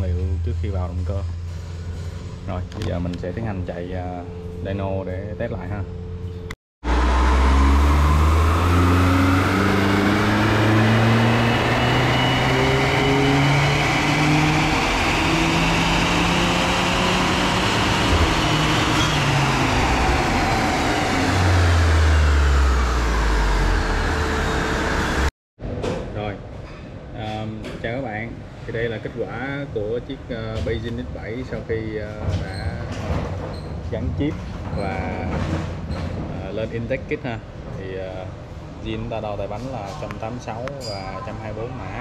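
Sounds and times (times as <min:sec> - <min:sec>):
car engine revving on dyno: 0:06.8 - 0:25.3.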